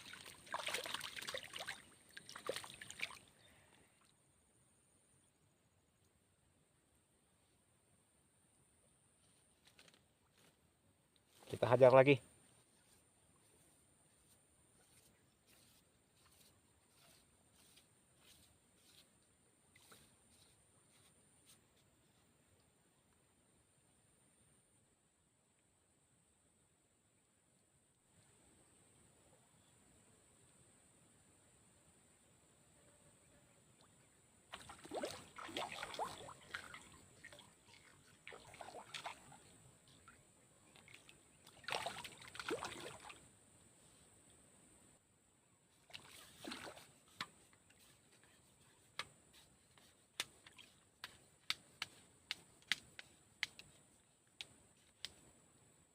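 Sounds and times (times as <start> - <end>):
water splashing and dripping: 0.0 - 3.3, 34.5 - 43.2, 45.8 - 47.3
small sharp water plinks: 0.0 - 4.1, 34.5 - 43.2
faint scattered clicks: 50.1 - 55.4.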